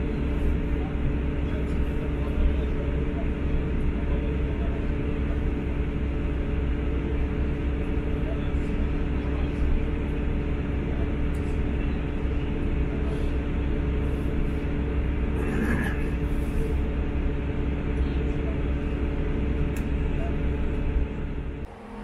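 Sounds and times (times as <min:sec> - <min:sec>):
constant drone: 0:00.0 - 0:22.0
diesel train engine rumble: 0:00.0 - 0:22.0.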